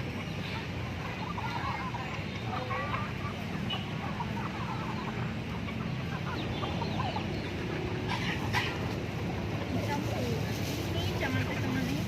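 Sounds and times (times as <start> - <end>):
chickens clucking and chirping: 0.0 - 12.0
rustling noise: 8.4 - 12.0.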